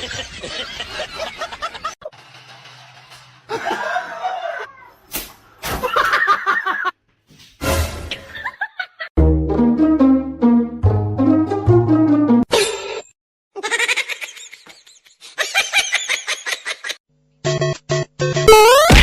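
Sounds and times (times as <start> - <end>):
people laughing: 0.0 - 2.0, 3.5 - 4.7, 5.8 - 6.9, 13.6 - 17.0
sharp slaps: 5.1 - 5.8.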